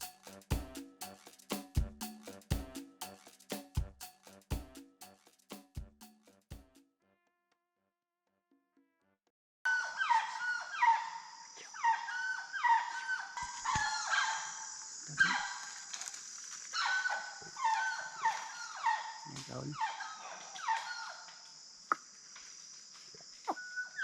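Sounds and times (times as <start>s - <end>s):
monkeys calling: 9.7s - 15.8s, 16.8s - 21.4s
high buzz of insects: 10.7s - 24.0s.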